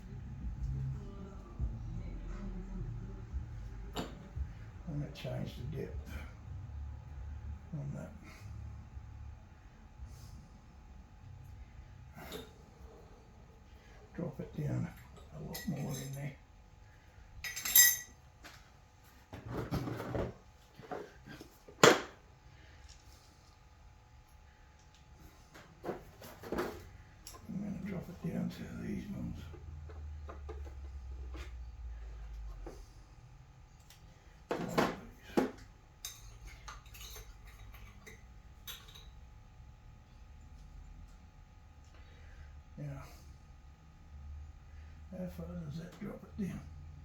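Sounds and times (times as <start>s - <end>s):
metallic clink: 17.4s - 18.2s.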